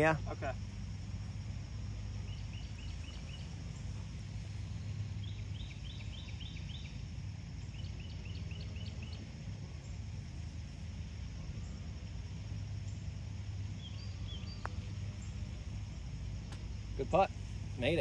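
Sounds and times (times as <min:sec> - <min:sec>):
low outdoor rumble: 0:00.0 - 0:18.0
bird chirping: 0:02.2 - 0:10.1, 0:13.7 - 0:15.5.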